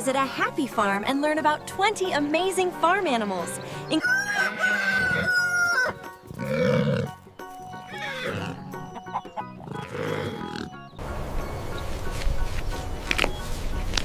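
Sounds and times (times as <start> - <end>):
cheerful background music: 0.0 - 14.0
farm animal calls: 3.4 - 11.0
rooster crowing: 4.0 - 6.0.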